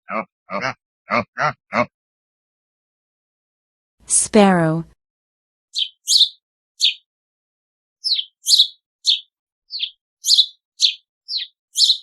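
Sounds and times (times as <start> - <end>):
sparrow chirping: 5.8 - 7.1, 8.0 - 12.0.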